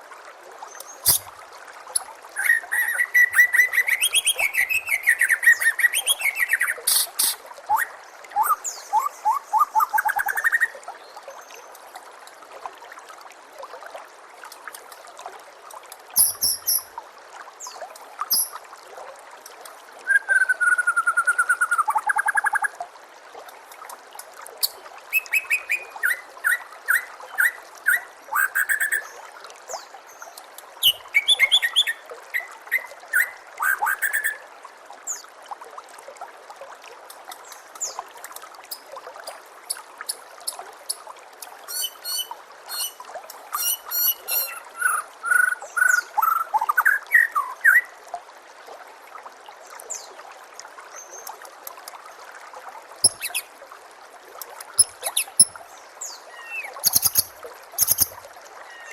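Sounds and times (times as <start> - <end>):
water trickling: 0.0 - 58.9
bird singing trills: 53.0 - 53.4, 54.8 - 55.5, 56.3 - 58.2.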